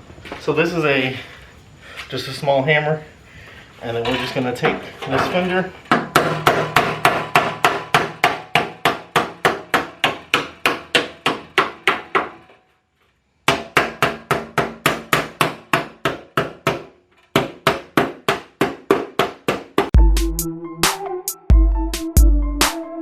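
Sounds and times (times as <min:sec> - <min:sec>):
small hammer striking metal: 0:05.9 - 0:12.6.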